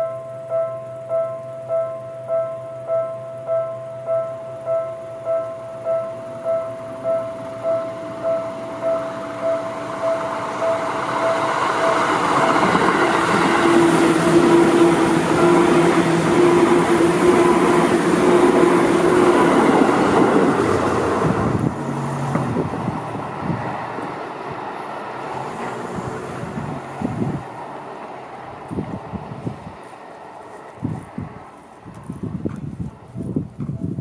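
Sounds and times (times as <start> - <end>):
level-crossing bell ringing: 0.0 - 20.5
electric train passing: 0.0 - 33.3
wheels clicking over rail joints: 6.2 - 33.8.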